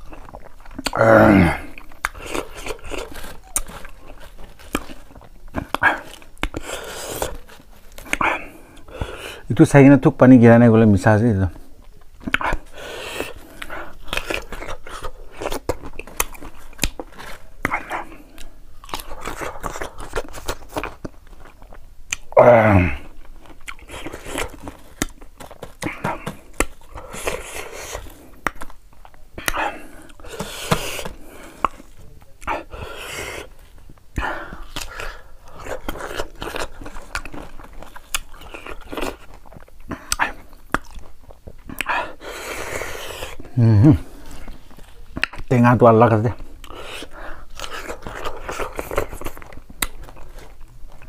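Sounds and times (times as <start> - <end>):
lip smacks: 0.0 - 1.0, 1.6 - 9.2, 12.1 - 21.5, 22.1 - 22.4, 23.5 - 33.5, 34.1 - 43.5, 44.4 - 45.5, 46.6 - 51.0
chewing crunchy mango: 0.0 - 9.5, 11.6 - 51.0
person groaning: 0.9 - 1.8, 22.3 - 23.2, 43.5 - 44.1.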